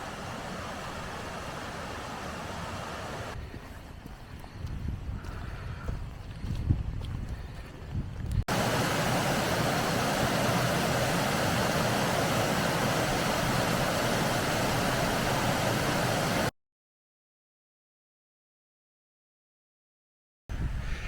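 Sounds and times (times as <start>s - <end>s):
waterfall rushing: 0.0s - 3.4s, 8.5s - 16.5s.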